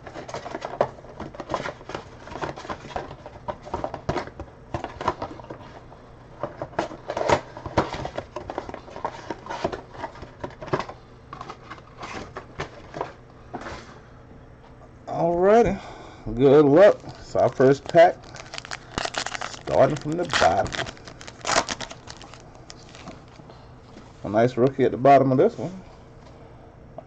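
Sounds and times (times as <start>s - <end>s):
foil packs crinkling: 16.4s - 23.4s.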